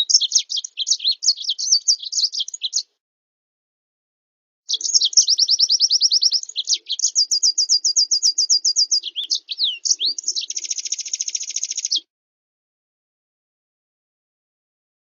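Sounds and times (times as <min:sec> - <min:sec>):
songbird whistling and trilling: 0:00.0 - 0:02.9, 0:04.7 - 0:12.1.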